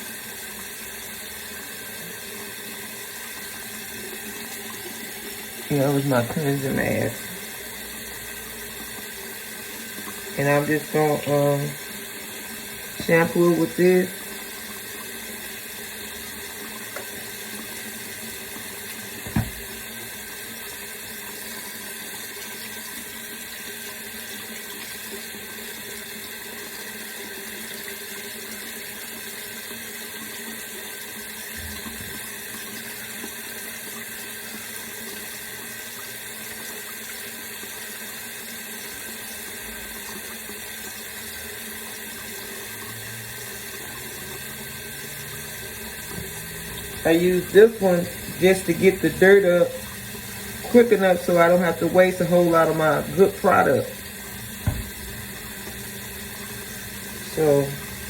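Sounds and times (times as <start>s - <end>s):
tap water running into sink: 0.0s - 58.0s
knock: 19.2s - 19.7s, 54.6s - 55.1s.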